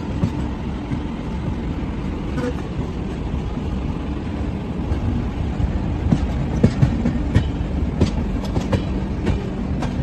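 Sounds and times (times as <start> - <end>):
train coach rumbling: 0.0 - 10.0
wheels clacking over rail joints: 0.0 - 10.0.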